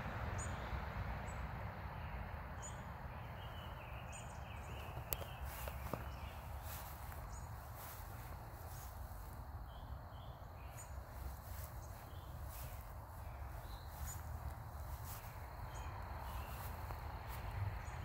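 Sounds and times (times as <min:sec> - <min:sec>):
low outdoor rumble: 0:00.0 - 0:18.0
small birds chirping: 0:02.0 - 0:18.0.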